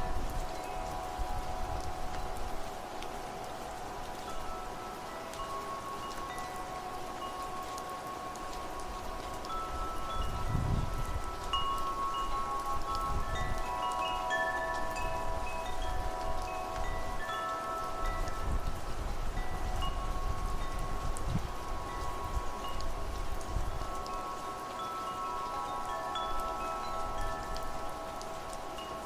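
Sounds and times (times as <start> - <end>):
faint hiss of rain: 0.0 - 29.0
gusting wind: 0.0 - 29.0
metal wind chimes ringing: 0.0 - 29.0.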